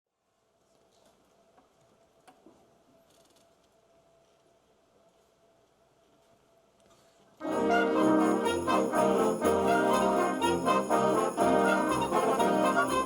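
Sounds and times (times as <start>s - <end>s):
brass playing: 7.4s - 13.0s
jingle bells shaking: 7.4s - 13.0s.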